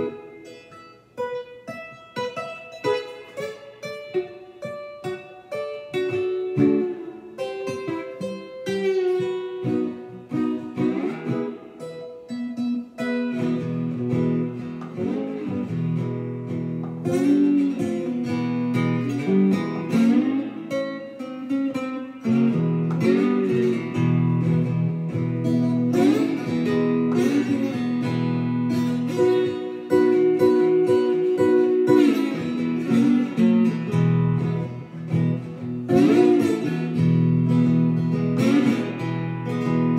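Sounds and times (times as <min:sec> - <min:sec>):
slide guitar blues: 0:00.0 - 0:39.9.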